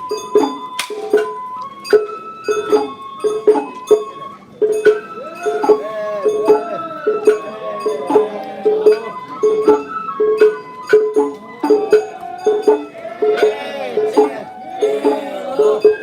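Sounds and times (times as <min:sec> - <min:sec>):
bamboo flute melody: 0:00.0 - 0:16.0
drum beat: 0:04.7 - 0:16.0.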